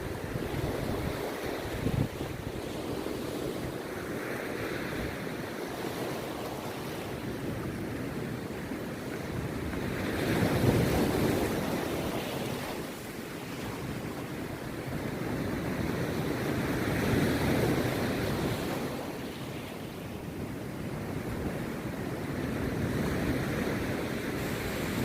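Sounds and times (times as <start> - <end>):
surf breaking on a beach: 0.0 - 25.0.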